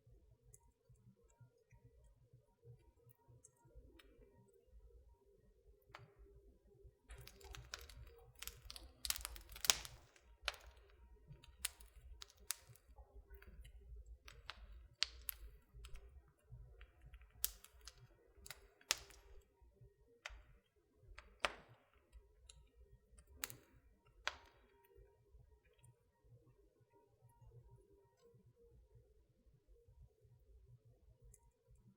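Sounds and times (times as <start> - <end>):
wood fire crackling: 7.1 - 25.0.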